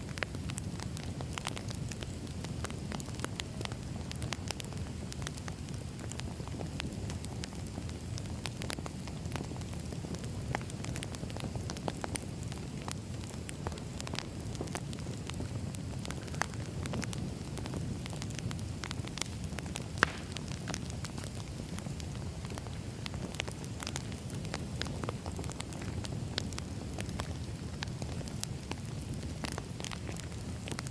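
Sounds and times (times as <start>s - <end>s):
campfire crackling and popping: 0.0s - 30.9s.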